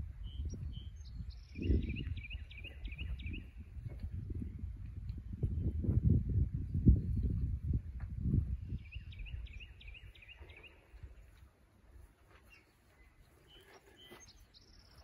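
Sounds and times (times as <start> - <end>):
small bird chirping: 0.2 - 3.7, 8.5 - 11.4, 12.4 - 15.0.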